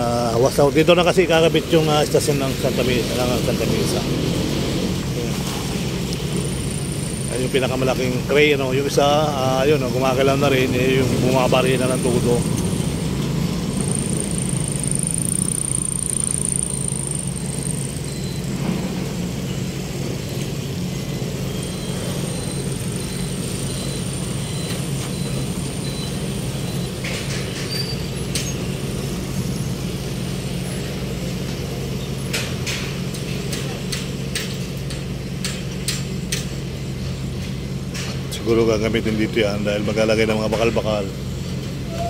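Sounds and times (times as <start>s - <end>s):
heavy engines droning: 0.0s - 42.0s
faint high whine: 5.2s - 29.8s.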